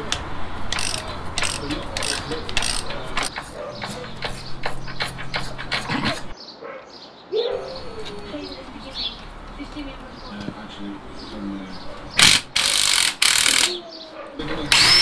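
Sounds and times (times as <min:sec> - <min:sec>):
ratchet wrench clicking: 0:00.1 - 0:03.3, 0:12.2 - 0:13.8.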